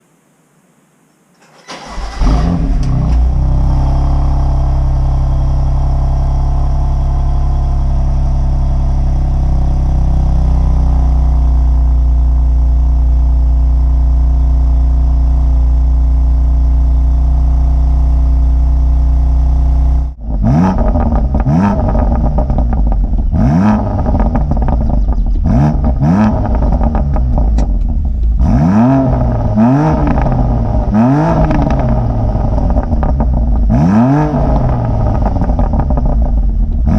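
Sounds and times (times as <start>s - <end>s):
car engine cold start and idle: 1.4s - 36.9s
engine revving in throttle blips: 1.7s - 12.0s, 19.6s - 36.9s.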